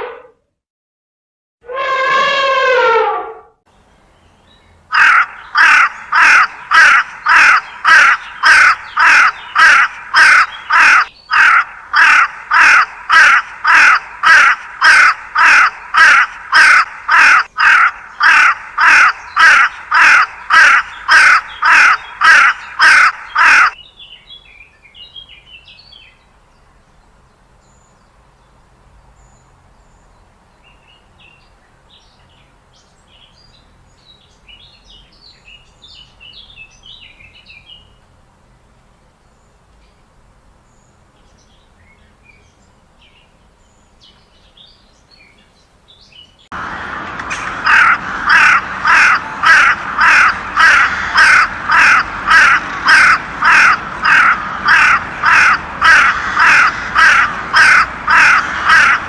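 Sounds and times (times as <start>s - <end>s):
bird cawing: 4.9s - 23.8s, 47.6s - 59.0s.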